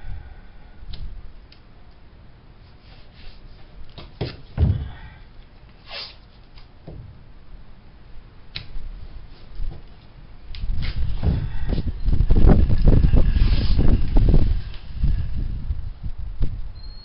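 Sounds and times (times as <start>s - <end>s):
knocks and thumps: 4.0s - 5.1s, 6.8s - 7.2s, 11.1s - 11.9s
short hiss: 5.8s - 6.2s.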